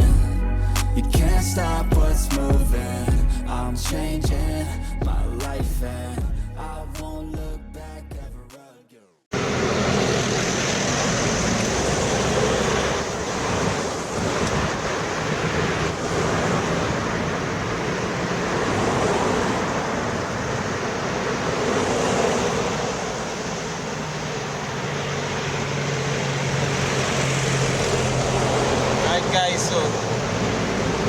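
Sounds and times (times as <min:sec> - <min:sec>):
steady rushing noise: 0:10.8 - 0:31.0.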